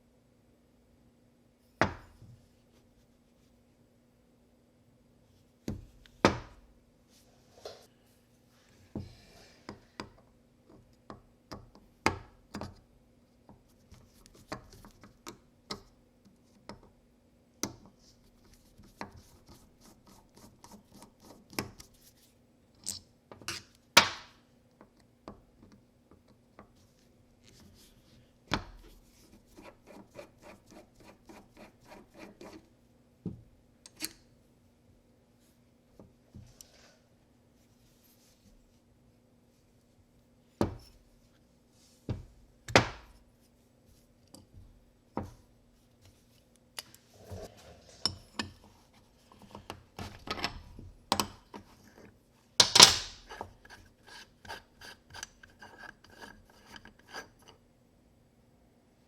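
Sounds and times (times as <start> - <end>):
hands handling tools and parts: 46.0 - 53.5.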